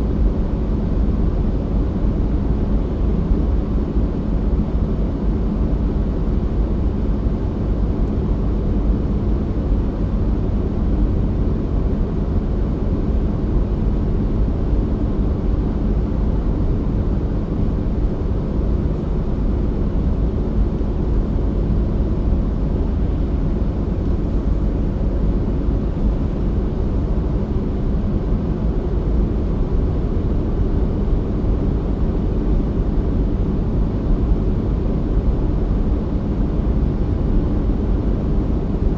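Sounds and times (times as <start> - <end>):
car driving on road rumble: 17.6 - 32.8.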